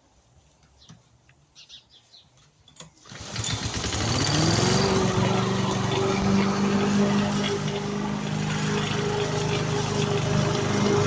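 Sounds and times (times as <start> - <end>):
lawn mower engine running: 3.0 - 11.0.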